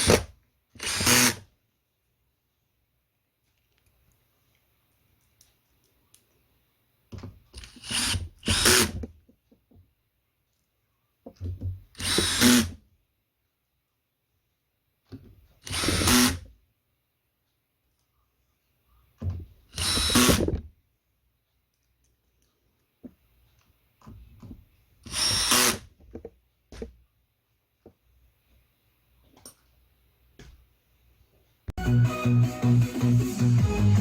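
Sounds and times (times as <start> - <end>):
cordless drill whirring: 0.8 - 1.4, 7.6 - 9.0, 12.0 - 12.8, 15.6 - 16.4, 19.7 - 20.5, 25.0 - 25.8.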